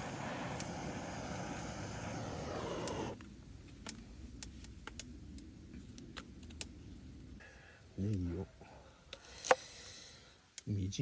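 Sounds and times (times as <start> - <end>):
rain rushing: 0.0 - 3.2.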